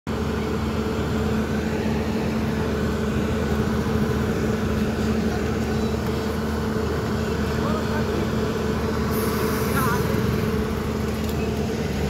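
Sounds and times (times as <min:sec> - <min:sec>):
excavator diesel engine running: 0:00.1 - 0:12.0.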